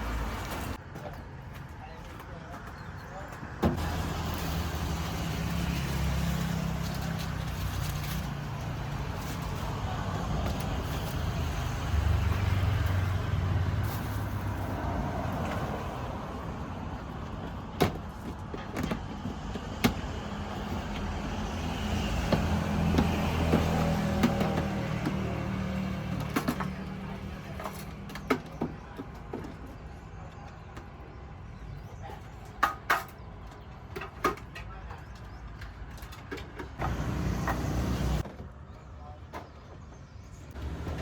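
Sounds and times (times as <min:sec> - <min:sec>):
street noise: 0:00.0 - 0:41.0
vehicle engine humming: 0:36.8 - 0:38.2.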